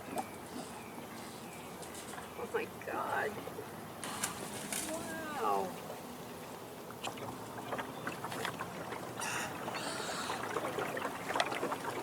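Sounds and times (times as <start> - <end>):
water lapping against boat: 0.0 - 12.0.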